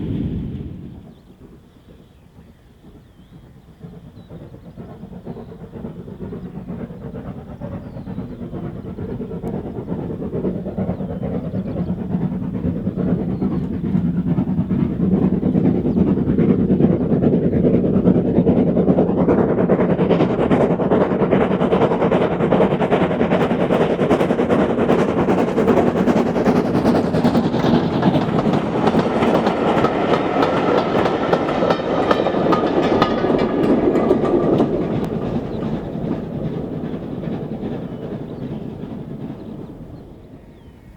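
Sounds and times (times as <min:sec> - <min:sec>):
steam train passing: 0:00.0 - 0:40.9
wheels clattering over rail joints: 0:23.2 - 0:40.7.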